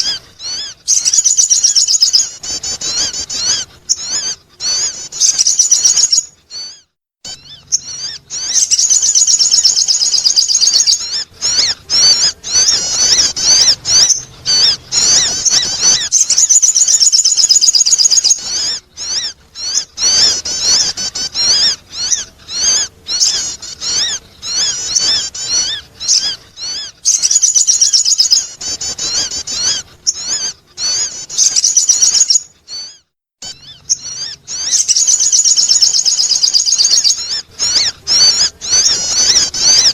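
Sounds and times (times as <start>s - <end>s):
bird twittering and chirping: 0.0s - 39.9s.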